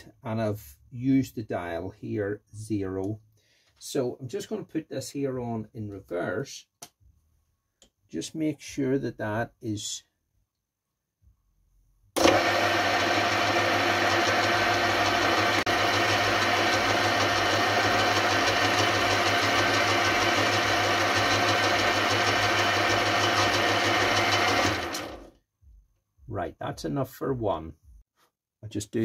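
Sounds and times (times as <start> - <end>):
metal lathe humming: 12.2 - 25.3.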